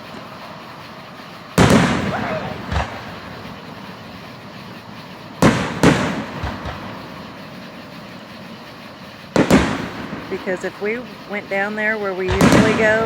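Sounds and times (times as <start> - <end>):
firework shells bursting: 0.0 - 13.0.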